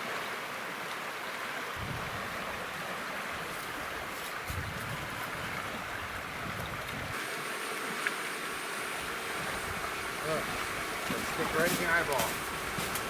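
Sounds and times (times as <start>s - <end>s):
wind buffeting microphone: 1.8s - 2.6s, 3.4s - 7.2s
steady rushing hiss: 8.3s - 13.0s.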